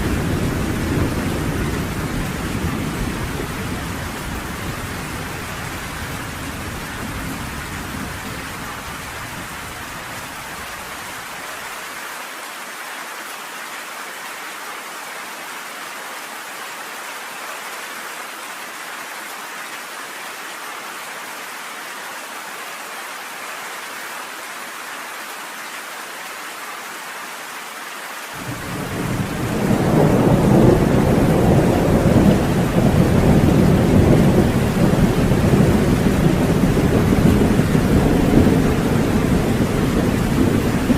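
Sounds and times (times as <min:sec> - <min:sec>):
thunder rumbling: 0:00.0 - 0:09.7, 0:28.4 - 0:40.9
steady rain hissing: 0:00.0 - 0:40.9.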